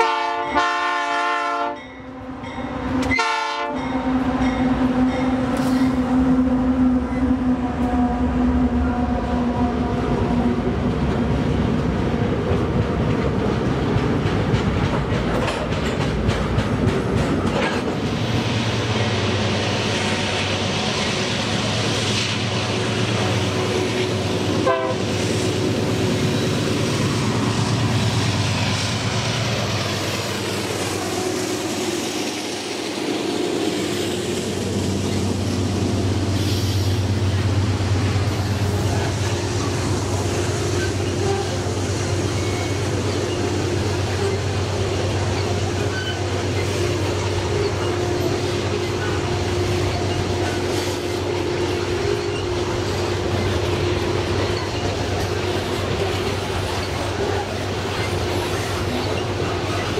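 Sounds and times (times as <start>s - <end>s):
freight train horn: 0.0s - 10.2s, 23.6s - 25.3s, 41.1s - 41.8s
diesel locomotive passing: 0.0s - 59.9s
train wheels clicking on rails: 2.9s - 6.0s, 10.8s - 59.9s.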